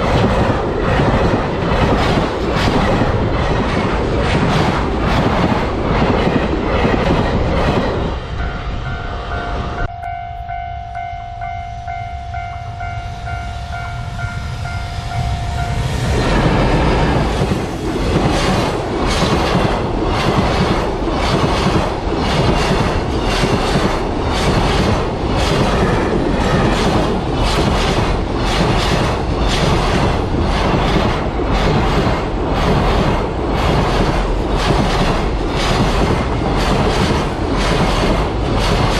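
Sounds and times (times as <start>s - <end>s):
train wheels clattering over rails: 0.0s - 8.3s, 15.7s - 38.9s
level crossing warning bell: 8.3s - 16.1s.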